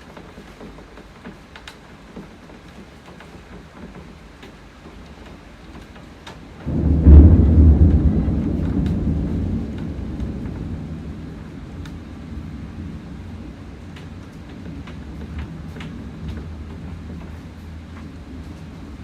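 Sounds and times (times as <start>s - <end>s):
steady rain: 0.0s - 19.0s
thunder rumble: 6.6s - 19.0s.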